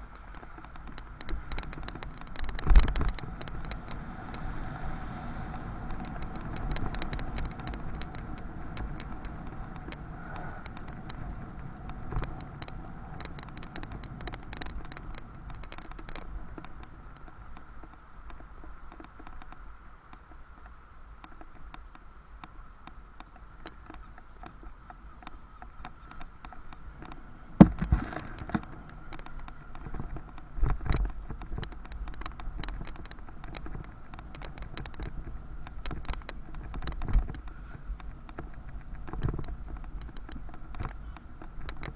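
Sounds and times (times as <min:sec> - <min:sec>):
bicycle clicks and rattles: 0:00.0 - 0:41.9
wind and road rumble: 0:00.0 - 0:41.9
bicycle thumping over bumps: 0:25.8 - 0:41.9.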